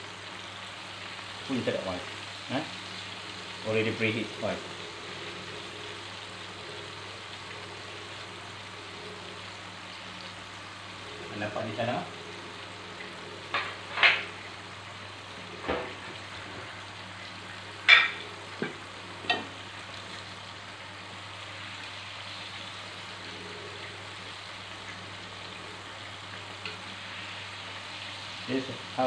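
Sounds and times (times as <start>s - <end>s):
chicken sizzling in oil: 0.0s - 29.0s
kitchen utensils clinking: 17.9s - 19.6s.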